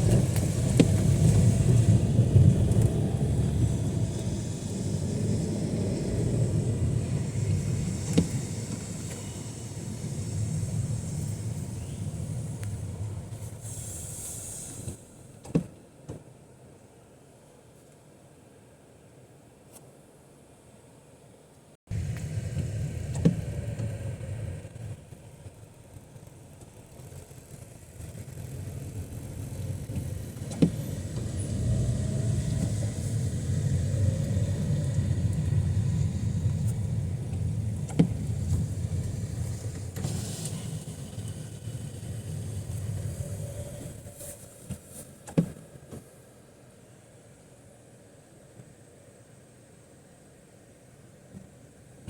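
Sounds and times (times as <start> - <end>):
vehicle passing rumble: 0.0 - 13.6, 25.8 - 44.6
tyre hiss on wet road: 3.2 - 15.4, 30.6 - 46.3.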